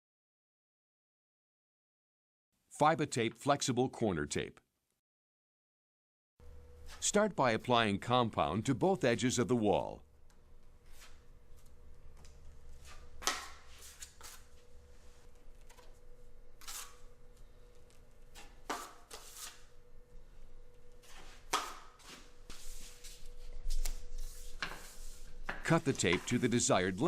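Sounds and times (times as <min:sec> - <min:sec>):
faint steady hum: 0:06.4 - 0:27.0
drywall knife scraping: 0:18.3 - 0:19.7.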